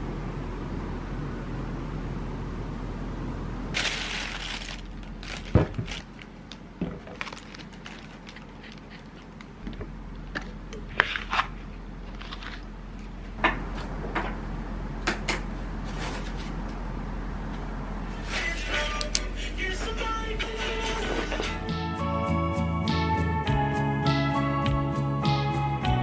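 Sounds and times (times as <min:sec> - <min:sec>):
steady low hum: 0:16.5 - 0:26.0.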